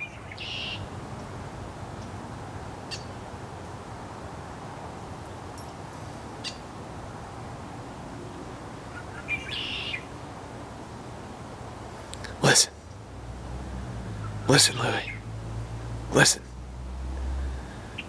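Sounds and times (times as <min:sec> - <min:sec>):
bird chirps: 0:00.0 - 0:00.9, 0:08.9 - 0:10.1, 0:14.2 - 0:15.3
outdoor background noise: 0:00.0 - 0:18.0.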